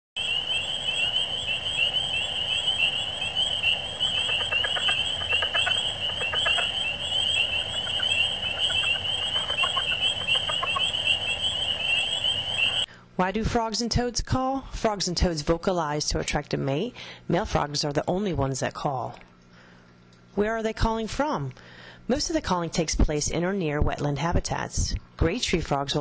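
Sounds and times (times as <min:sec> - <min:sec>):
high-pitched frog chorus: 0:00.2 - 0:12.9
low pulsed frog calls: 0:00.2 - 0:12.9.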